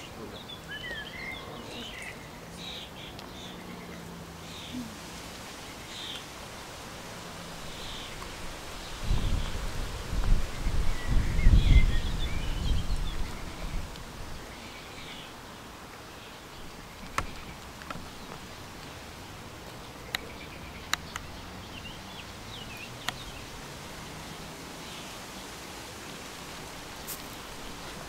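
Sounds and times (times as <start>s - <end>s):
high chirping bird calls: 0.0s - 5.0s
wind rumble on microphone: 6.8s - 14.6s
sharp clicks: 20.1s - 21.3s.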